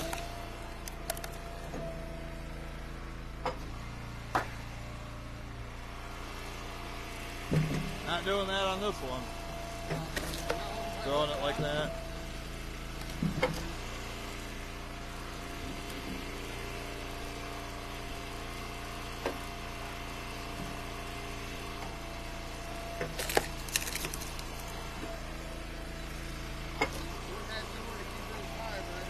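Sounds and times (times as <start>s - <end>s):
wood knocks and cracks: 0.0s - 1.4s, 23.0s - 24.6s
log splitter engine running: 0.0s - 29.0s.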